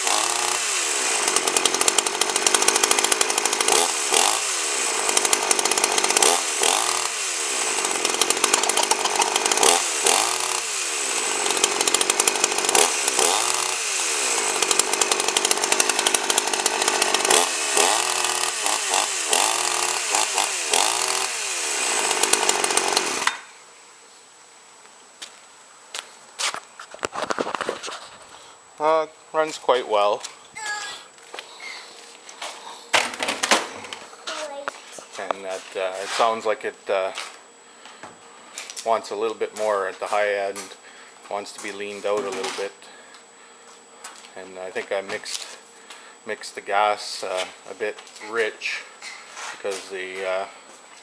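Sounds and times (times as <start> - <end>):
chainsaw engine revving: 0.0 - 23.4.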